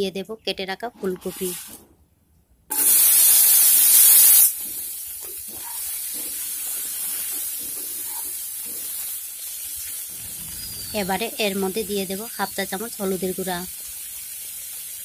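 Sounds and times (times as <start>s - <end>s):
vegetables sizzling in hot oil: 2.7s - 15.0s
wooden spatula stirring: 4.6s - 9.5s.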